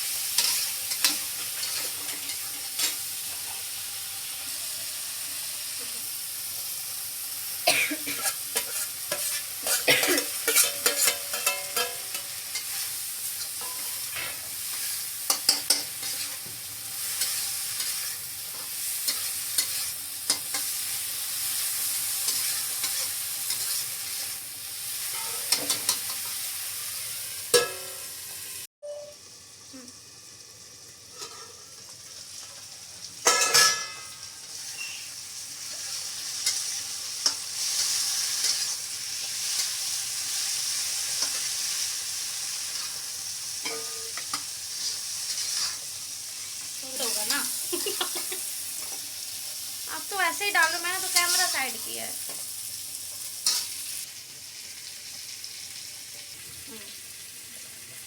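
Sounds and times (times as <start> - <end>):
spoon stirring and scraping pan: 0.0 - 4.6, 8.1 - 28.1, 31.1 - 49.7, 50.7 - 52.5, 53.1 - 54.4
beans sizzling in a pan: 0.0 - 58.0.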